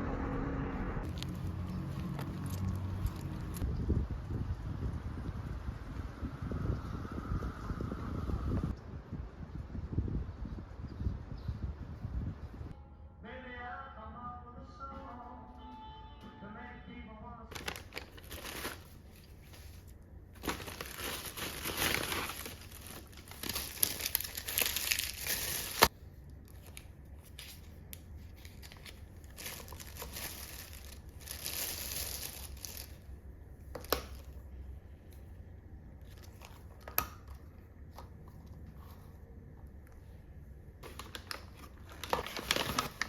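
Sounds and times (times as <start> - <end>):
wrapping crinkling and tearing: 17.5 - 33.0, 40.8 - 43.0.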